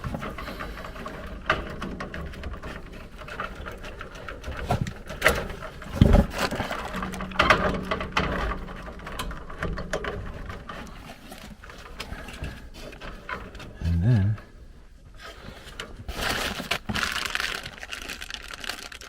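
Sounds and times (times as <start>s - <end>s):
wiring clicks and knocks: 0.0s - 13.8s.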